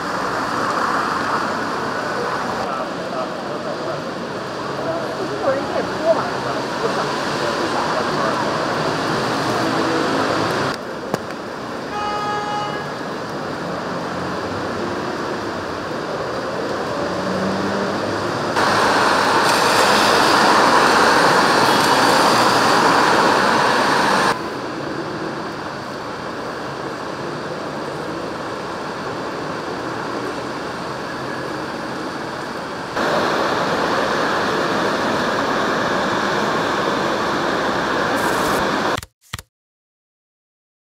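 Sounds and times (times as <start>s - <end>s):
heavy rain on a street: 0.0s - 39.0s
traffic on wet road: 0.0s - 39.0s
rain splashing in puddles: 18.6s - 24.4s.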